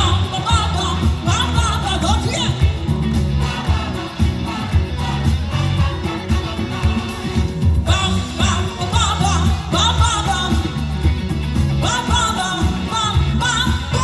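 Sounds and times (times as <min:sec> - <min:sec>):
live rock band playing: 0:00.0 - 0:14.0
person singing: 0:00.0 - 0:14.0
audience singing along: 0:02.2 - 0:09.8.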